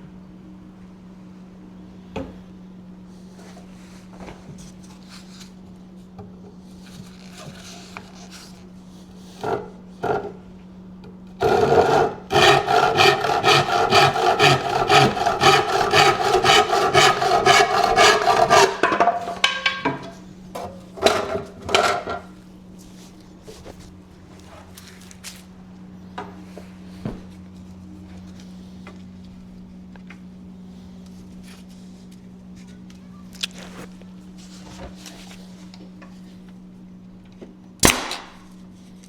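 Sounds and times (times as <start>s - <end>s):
hand saw cutting wood: 11.4s - 19.6s.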